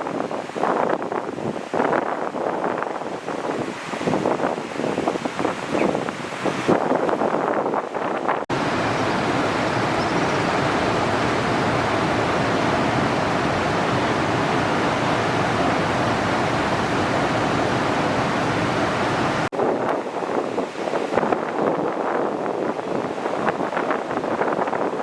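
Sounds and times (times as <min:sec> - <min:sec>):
wind noise: 0:00.0 - 0:25.0
ocean surf: 0:08.5 - 0:25.0.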